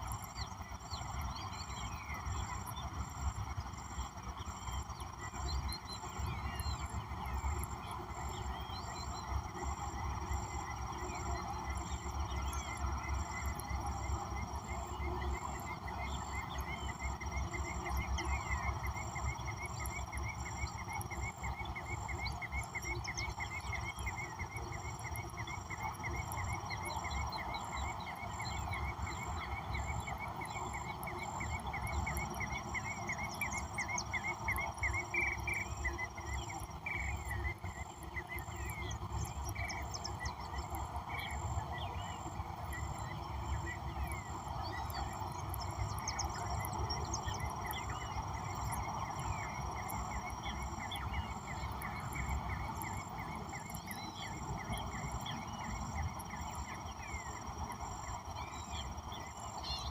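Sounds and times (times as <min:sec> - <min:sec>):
frog chorus: 0:00.0 - 0:59.9
pulsing high insect trill: 0:00.0 - 0:59.9.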